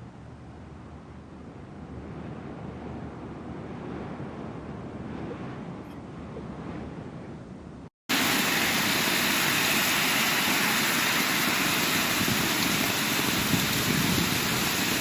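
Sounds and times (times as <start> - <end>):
floodwater rushing: 8.1 - 15.0
torrential rain: 8.1 - 15.0.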